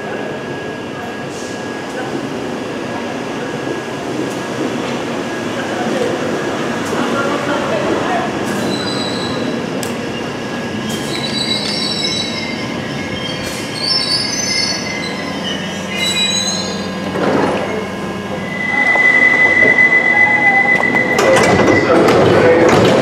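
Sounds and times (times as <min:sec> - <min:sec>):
train wheels squealing: 0:08.5 - 0:17.1, 0:18.4 - 0:22.1
train clank: 0:20.8 - 0:23.0.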